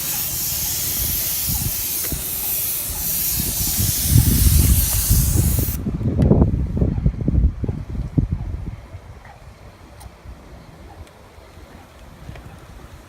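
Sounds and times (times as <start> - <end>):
high-pressure spray hissing: 0.0 - 5.8
low rumbling noise: 0.0 - 11.6.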